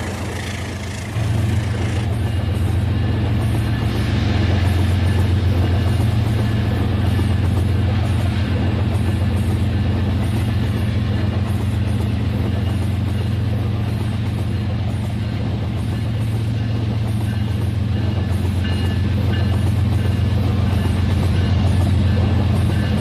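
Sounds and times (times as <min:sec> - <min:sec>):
wheels ticking over track joints: 0:00.0 - 0:02.2
toy train motor humming: 0:00.0 - 0:02.4.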